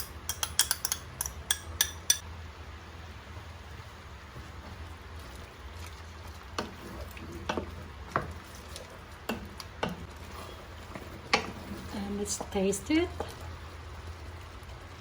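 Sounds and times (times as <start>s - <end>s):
spoon stirring stew in pot: 5.2s - 13.5s.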